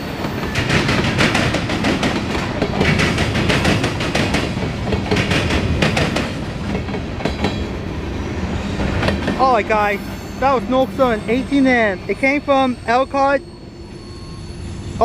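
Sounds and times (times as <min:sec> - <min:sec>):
freight cars rumbling: 0:00.0 - 0:15.0
wheels clicking over rail joints: 0:00.1 - 0:07.7.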